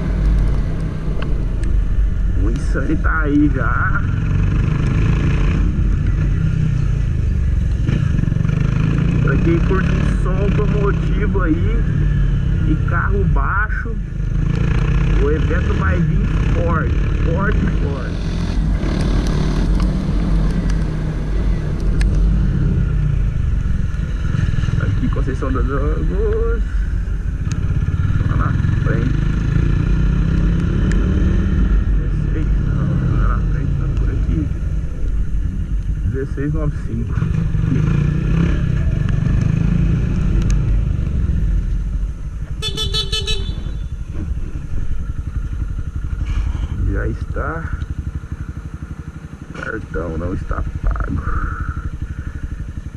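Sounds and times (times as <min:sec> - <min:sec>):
motorcycle engine running: 0:00.0 - 0:52.9
horn beeping: 0:42.6 - 0:44.0.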